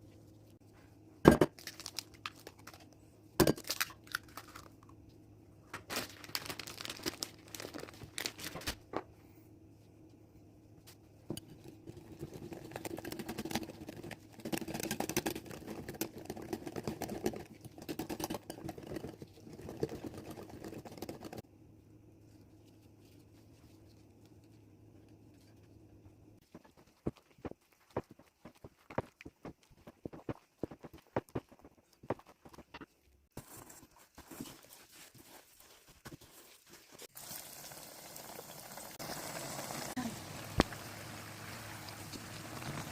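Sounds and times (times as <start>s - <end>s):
food crinkling and crunching: 1.5s - 3.0s, 3.6s - 5.0s, 5.8s - 8.8s, 26.4s - 37.4s.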